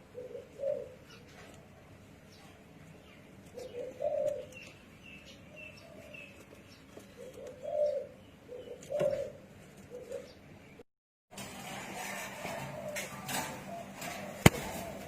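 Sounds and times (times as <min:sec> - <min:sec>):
dove cooing: 0:00.0 - 0:01.4, 0:03.4 - 0:04.7, 0:07.2 - 0:10.4, 0:12.1 - 0:15.0.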